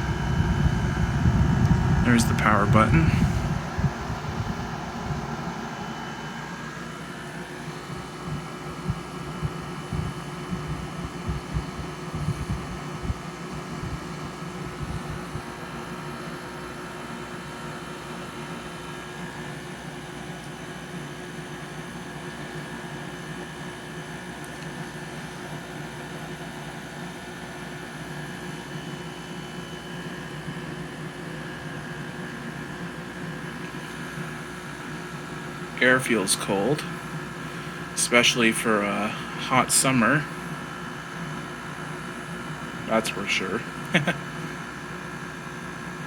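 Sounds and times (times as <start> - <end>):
low thumps and rumbles: 0.0 - 5.3
air conditioner fan humming: 0.0 - 46.0.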